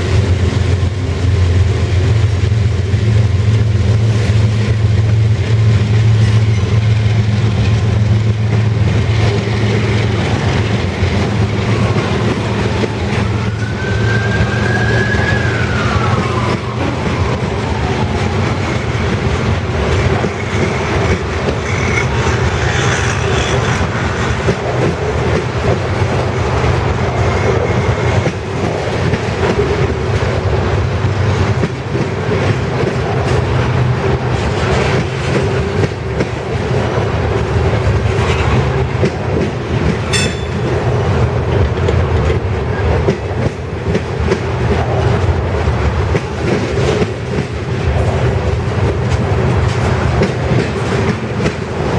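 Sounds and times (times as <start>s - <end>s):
freight train cars rolling past: 0.0s - 51.9s
steel wheels clacking over rail joints: 3.2s - 51.9s.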